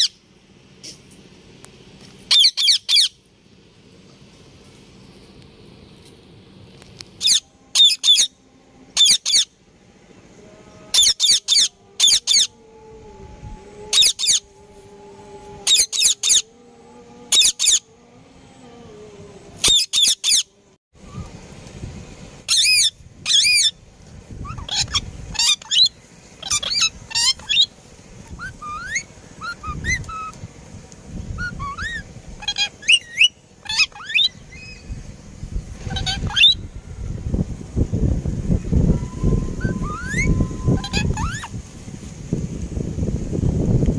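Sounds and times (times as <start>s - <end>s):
parrot calling: 2.3s - 3.2s, 7.2s - 9.6s, 10.9s - 12.6s, 13.9s - 14.5s, 15.6s - 16.5s, 17.3s - 17.9s, 19.6s - 20.5s, 22.5s - 23.8s, 24.4s - 30.4s, 31.4s - 35.0s, 35.8s - 36.6s, 39.1s - 41.5s
soft chirps and rising whistles: 7.2s - 21.5s, 22.4s - 30.4s, 31.2s - 41.6s.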